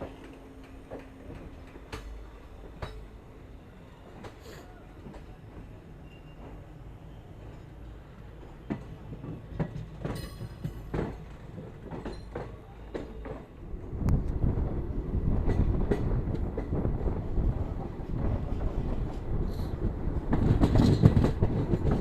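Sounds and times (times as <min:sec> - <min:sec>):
train wheels clattering on rails: 0:00.0 - 0:03.2, 0:08.4 - 0:14.5, 0:15.2 - 0:22.0
heavy train rumble: 0:00.0 - 0:22.0.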